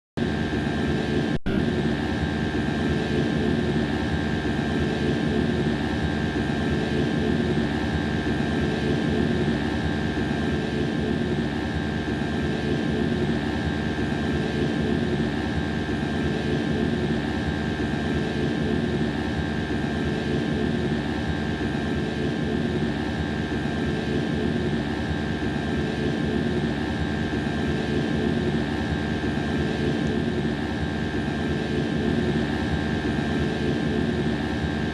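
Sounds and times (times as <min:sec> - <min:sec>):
air conditioner drone: 0:00.2 - 0:34.9
high whine: 0:00.3 - 0:04.1.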